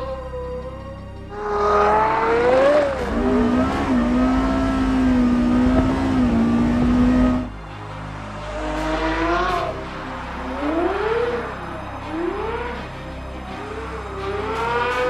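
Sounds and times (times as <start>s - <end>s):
car engine revving hard: 2.6s - 7.5s.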